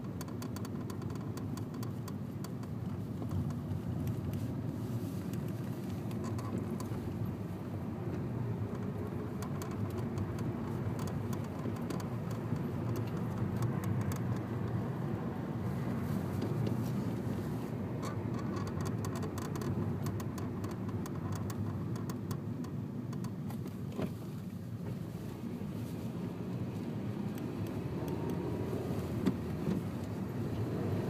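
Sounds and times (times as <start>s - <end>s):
car engine rumbling: 0.0s - 31.0s
light ticks: 18.0s - 23.7s.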